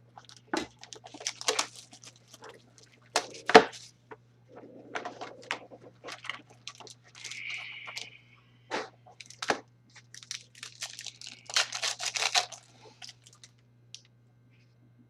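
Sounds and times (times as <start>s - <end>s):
plastic wrapper crinkling: 0.0s - 4.0s, 4.6s - 8.1s, 8.7s - 14.1s
wrapper tearing: 0.2s - 3.9s, 5.2s - 8.1s, 9.1s - 13.6s.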